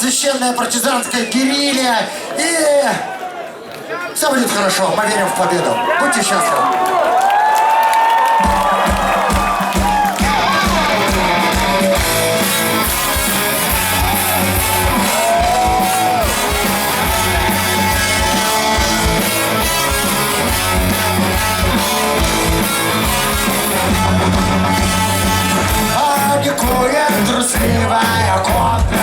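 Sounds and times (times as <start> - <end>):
live rock band playing: 8.4 - 29.0.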